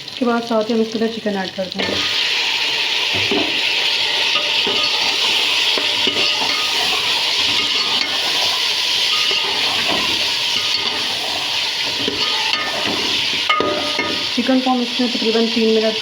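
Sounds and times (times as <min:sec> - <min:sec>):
chicken sizzling in hot oil: 0:00.0 - 0:16.0
spoon clinking against pot: 0:04.3 - 0:11.2, 0:11.9 - 0:14.4.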